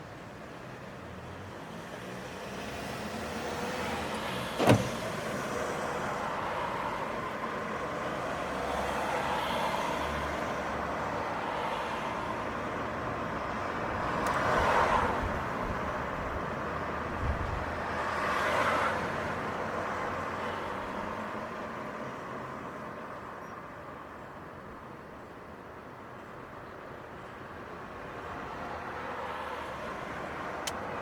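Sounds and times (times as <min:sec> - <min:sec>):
cars passing: 0:01.4 - 0:22.7, 0:27.9 - 0:31.0.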